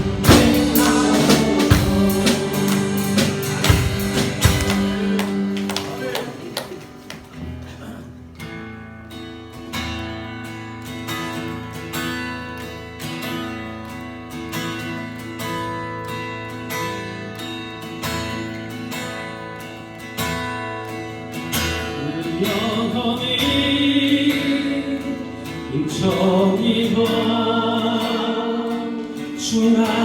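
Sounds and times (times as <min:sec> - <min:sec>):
praise band playing instrumental: 0:00.0 - 0:07.8
acoustic guitar strumming: 0:00.0 - 0:30.0.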